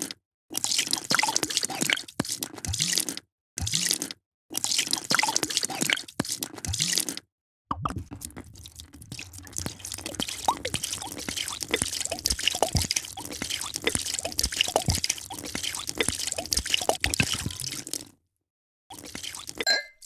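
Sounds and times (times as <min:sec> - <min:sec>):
fizzing pops: 0:07.9 - 0:18.2, 0:18.9 - 0:20.0
drink poured into glass: 0:08.0 - 0:18.1, 0:18.9 - 0:20.0.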